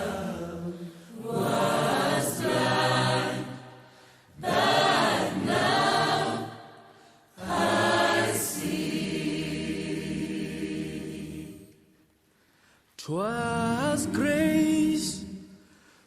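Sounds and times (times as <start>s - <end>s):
choir singing held chords: 0.0s - 12.2s.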